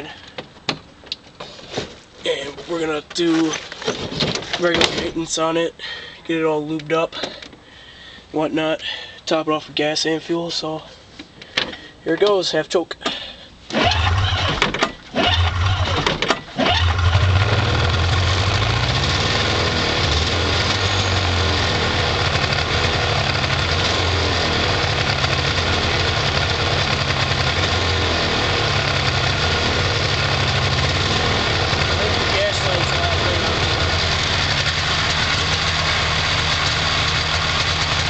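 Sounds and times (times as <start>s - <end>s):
snowmobile engine pull-started: 13.7s - 38.0s.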